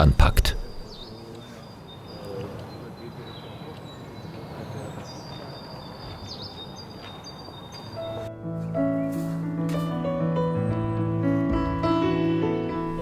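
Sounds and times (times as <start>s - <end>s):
birds chirping and whistling: 0.3s - 8.3s.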